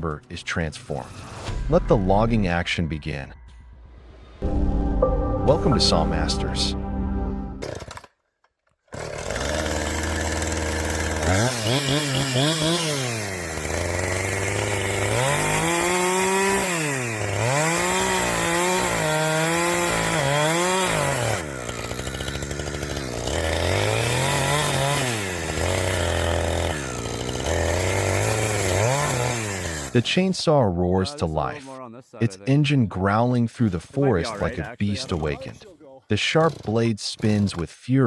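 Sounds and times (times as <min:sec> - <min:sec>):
chainsaw idling and revving: 0:08.9 - 0:30.2, 0:34.0 - 0:37.6.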